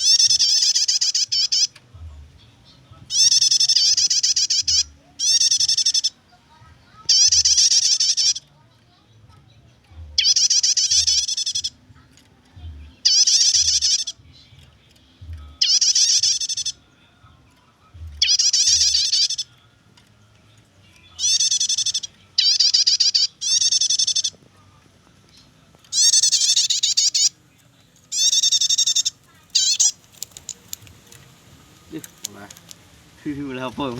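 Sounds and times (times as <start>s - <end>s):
bird chattering call: 0.0s - 1.8s, 3.1s - 6.2s, 7.1s - 8.5s, 10.2s - 11.8s, 13.0s - 14.2s, 15.6s - 16.8s, 18.2s - 19.5s, 21.2s - 24.4s, 25.9s - 27.4s, 28.1s - 30.5s.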